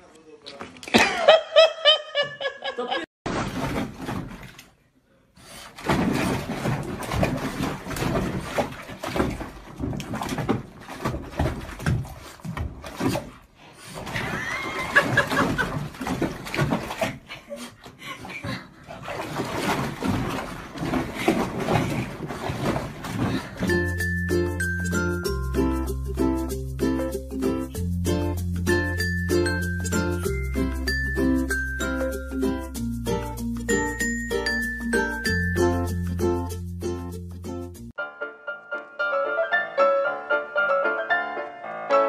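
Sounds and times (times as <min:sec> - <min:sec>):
water splashing and sloshing: 0:03.3 - 0:24.9.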